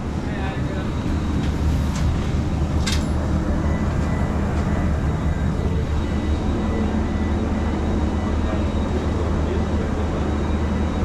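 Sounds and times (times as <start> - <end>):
cabin air conditioning drone: 0.0 - 11.0.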